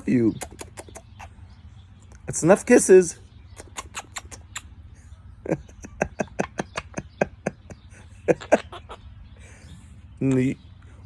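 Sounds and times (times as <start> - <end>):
parrot mimicking laughter: 3.6 - 4.6, 5.5 - 9.3.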